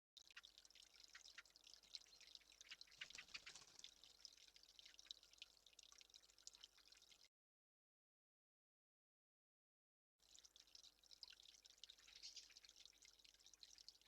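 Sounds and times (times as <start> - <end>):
water dripping: 0.2 - 7.3, 10.2 - 14.0.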